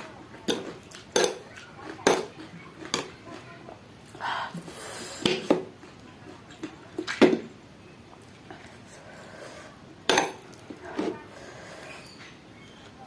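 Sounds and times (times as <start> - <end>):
mouth chewing noises: 0.1 - 7.2.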